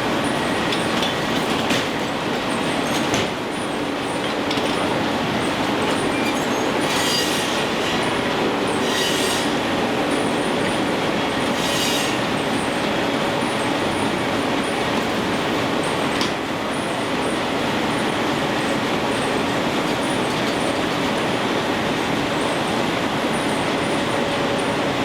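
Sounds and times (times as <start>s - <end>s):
sawmill machinery din: 4.8s - 12.9s.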